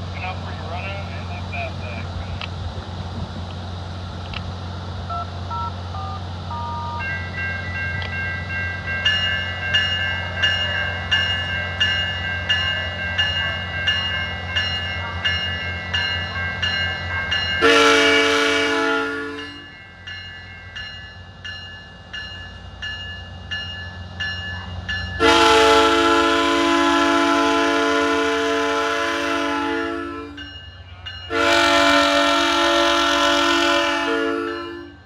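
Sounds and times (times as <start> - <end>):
diesel locomotive rumble: 0.0 - 35.0
railroad crossing bells dinging: 5.0 - 35.0
train horn blast: 17.6 - 19.7, 25.2 - 30.4, 31.3 - 35.0.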